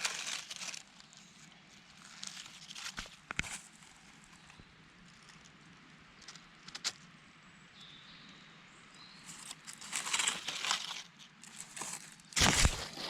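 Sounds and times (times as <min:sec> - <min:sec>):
twigs snapping: 0:00.0 - 0:00.9, 0:09.4 - 0:13.0
rustling of forest floor litter: 0:00.0 - 0:05.5, 0:09.1 - 0:13.0.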